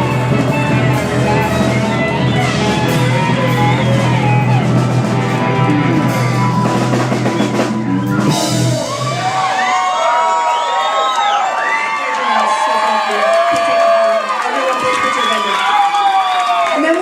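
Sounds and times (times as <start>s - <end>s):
loud rock music: 0.0s - 9.8s
crowd cheering and whooping: 0.0s - 17.0s.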